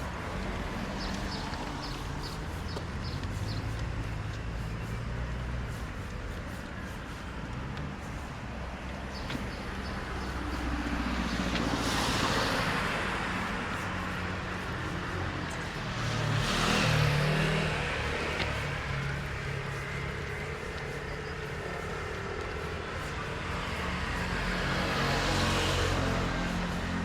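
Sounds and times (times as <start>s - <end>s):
low traffic hum: 0.0s - 27.0s
cars passing on wet road: 7.3s - 27.0s.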